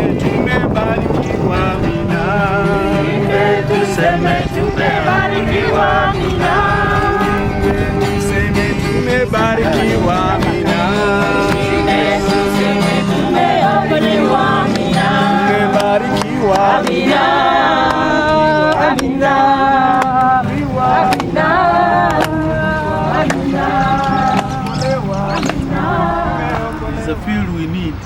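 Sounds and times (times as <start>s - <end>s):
music with singing voices: 0.0s - 27.4s.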